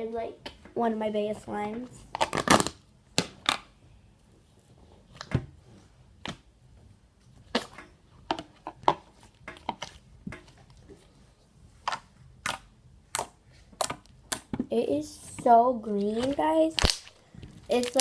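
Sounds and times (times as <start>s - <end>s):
slime being squished by hand: 16.2s - 18.0s.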